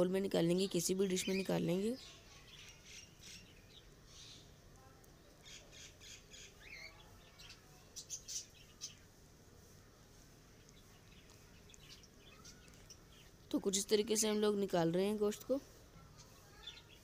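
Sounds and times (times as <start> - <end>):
faint bird chirps and squawks: 1.1 - 4.6, 5.3 - 9.1, 10.6 - 13.4, 15.7 - 17.0.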